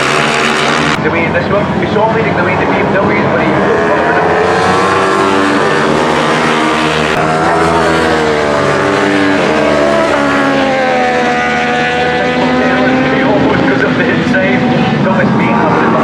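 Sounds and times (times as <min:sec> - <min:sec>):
racing motorcycle engines: 0:00.0 - 0:16.0.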